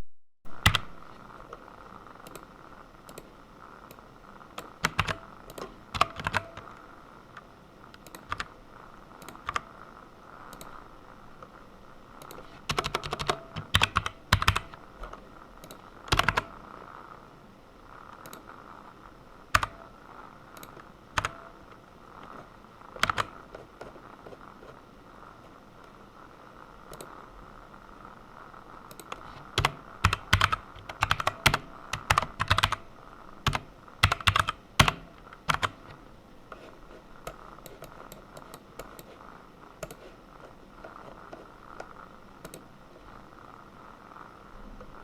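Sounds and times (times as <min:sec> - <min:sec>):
faint steady hum: 0:00.0 - 0:45.0
typing on computer keyboard: 0:00.6 - 0:01.0, 0:04.6 - 0:06.7, 0:08.0 - 0:08.5, 0:09.2 - 0:09.7, 0:12.2 - 0:14.8, 0:15.6 - 0:16.5, 0:19.6 - 0:19.9, 0:20.6 - 0:21.5, 0:23.0 - 0:24.8, 0:28.9 - 0:32.8, 0:33.4 - 0:36.0, 0:39.8 - 0:40.1.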